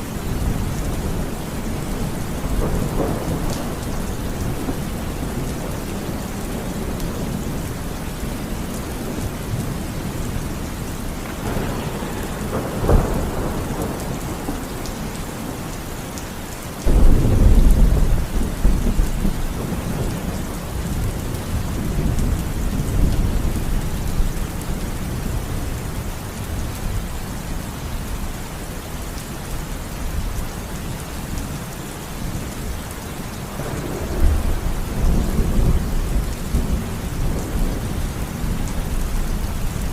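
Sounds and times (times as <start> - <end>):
heavy rain: 0.0 - 39.9
thunder rumbling: 0.1 - 16.2, 16.8 - 24.4, 33.5 - 39.9
sharp thunder crack: 11.3 - 14.8.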